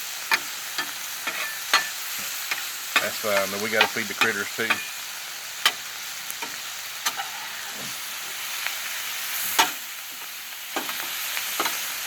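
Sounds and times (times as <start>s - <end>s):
vegetables sizzling on griddle: 0.0s - 12.0s
metal spatula clicking on griddle: 0.3s - 4.9s.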